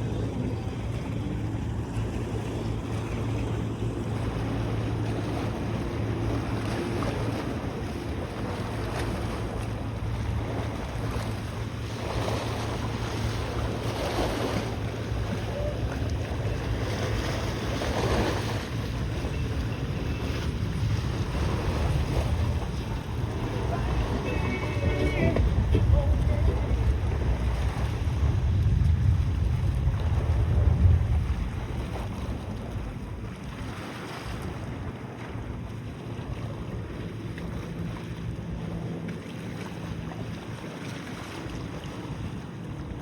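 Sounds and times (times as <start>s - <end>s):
boat engine droning: 0.0s - 43.0s
water rushing: 0.0s - 43.0s
wind buffeting microphone: 0.0s - 43.0s.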